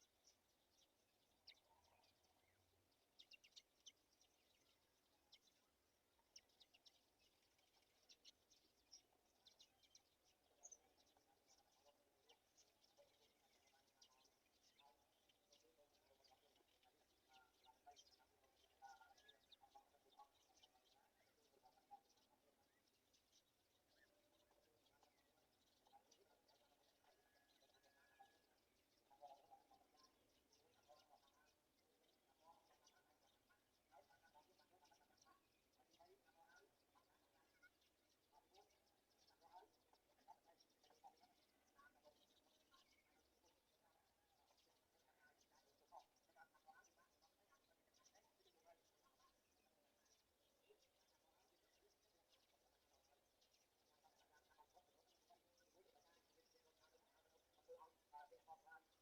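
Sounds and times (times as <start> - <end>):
faint bird chirps: 0.0 - 59.0.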